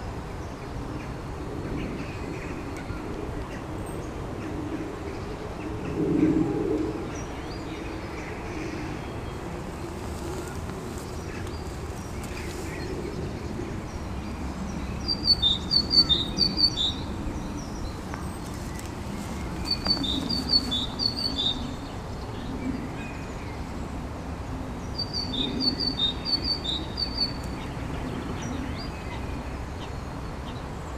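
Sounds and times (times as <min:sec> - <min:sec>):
songbird chirping: 0:09.1 - 0:22.5.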